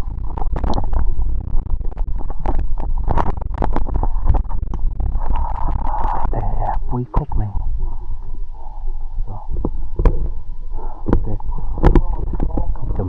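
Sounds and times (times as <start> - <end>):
microphone rumbling: 0.0 - 13.0
irregular knocks and clicks: 9.5 - 13.0.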